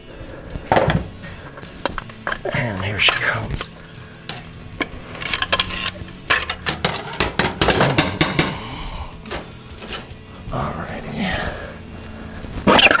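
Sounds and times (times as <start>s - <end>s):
metal parts clinking and knocking: 0.7s - 10.4s.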